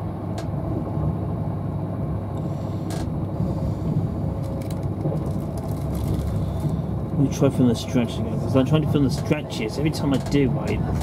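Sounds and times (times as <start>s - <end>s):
train cabin rumble: 0.0s - 11.0s.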